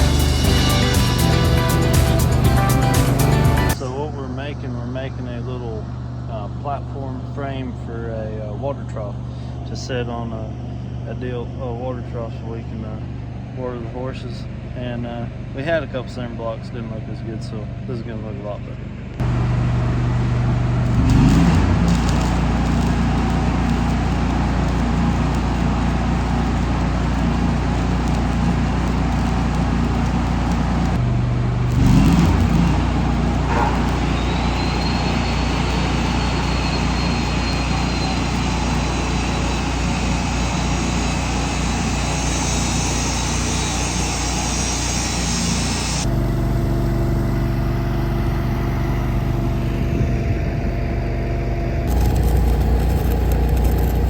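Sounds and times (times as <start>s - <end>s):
welding arc crackling: 0.0s - 3.8s, 19.2s - 46.6s, 51.9s - 54.0s
engine hum: 0.0s - 11.5s, 12.6s - 54.0s.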